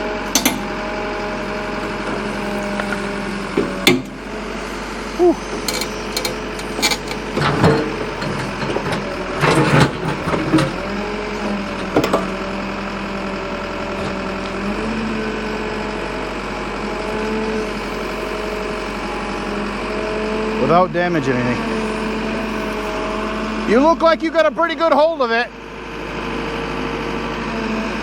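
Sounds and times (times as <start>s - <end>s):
excavator diesel engine straining: 0.0s - 28.0s
knocks and clanks: 0.3s - 0.7s, 3.6s - 4.2s, 5.5s - 10.8s, 11.8s - 12.3s.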